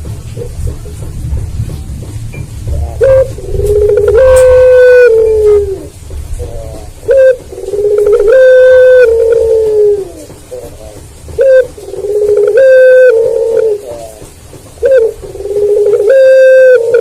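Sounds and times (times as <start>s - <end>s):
dove cooing: 2.5s - 17.0s.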